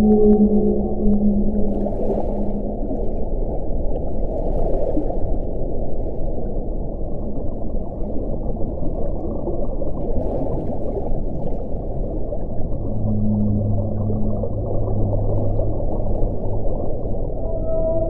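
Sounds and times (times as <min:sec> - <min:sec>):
low hum-like tone: 0:00.0 - 0:04.4, 0:11.9 - 0:18.0
low rushing wind: 0:00.0 - 0:04.4, 0:12.0 - 0:18.0.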